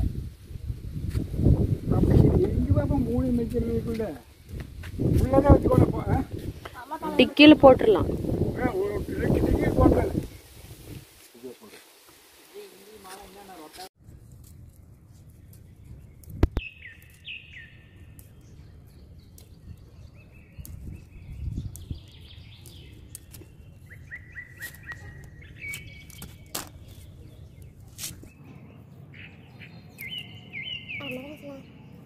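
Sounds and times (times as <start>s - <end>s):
small birds chirping: 15.1s - 32.0s.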